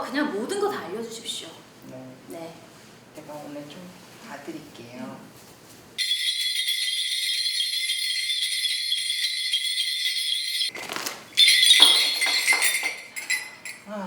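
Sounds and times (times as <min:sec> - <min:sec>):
bell cluster jingling: 0:06.0 - 0:13.9.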